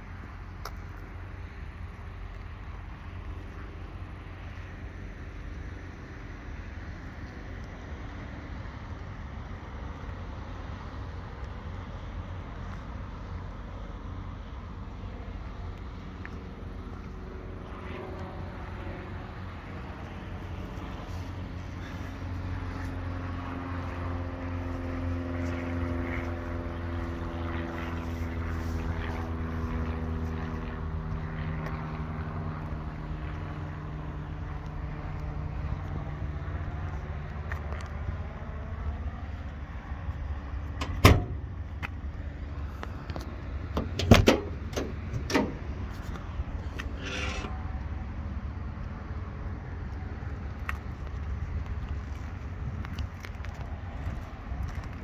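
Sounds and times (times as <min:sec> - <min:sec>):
clunks: 0:43.8 - 0:45.7.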